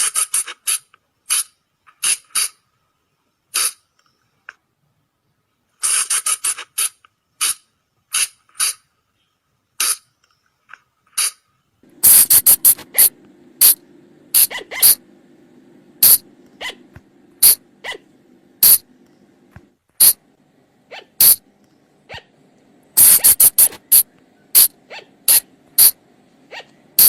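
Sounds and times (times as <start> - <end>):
low steady hum: 11.6 - 27.0
colugo squeaking: 12.1 - 15.0, 16.0 - 18.8.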